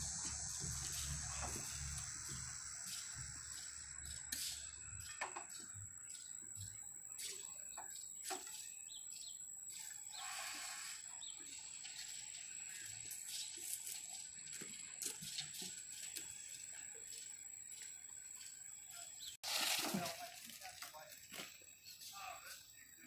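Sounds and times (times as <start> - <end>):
steady high hiss: 0.0 - 17.8
birds chirping: 0.0 - 23.0.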